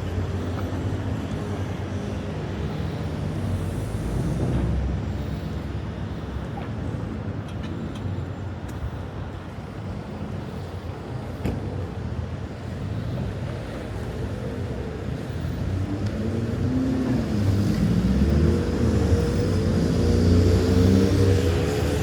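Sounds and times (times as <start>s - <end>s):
cars passing: 8.7s - 22.0s.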